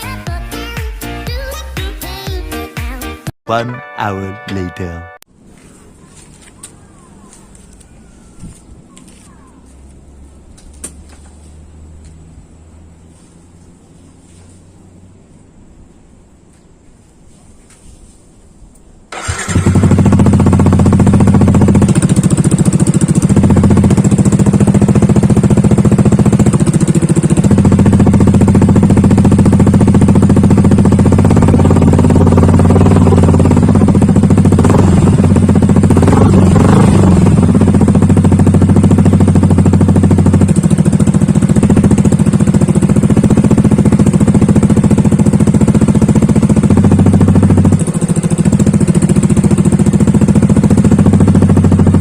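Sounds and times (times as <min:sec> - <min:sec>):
motorcycle engine idling: 0:05.8 - 0:16.4, 0:19.1 - 0:52.0
engine revving: 0:09.6 - 0:15.3, 0:19.1 - 0:52.0.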